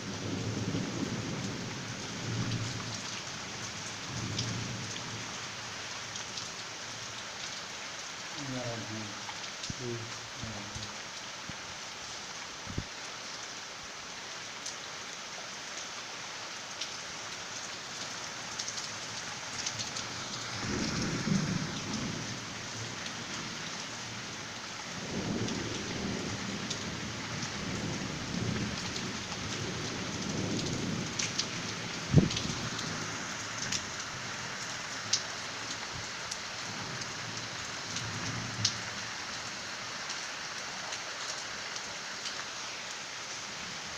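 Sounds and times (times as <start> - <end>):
steady rain falling: 0.0 - 43.9
low thunder rumbles: 0.1 - 3.0, 20.6 - 22.9, 25.0 - 33.7.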